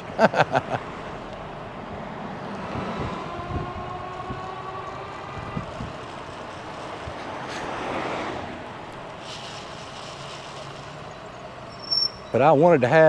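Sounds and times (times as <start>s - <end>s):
whoosh of passing vehicle: 0.0s - 13.0s
wind and road noise: 0.0s - 13.0s.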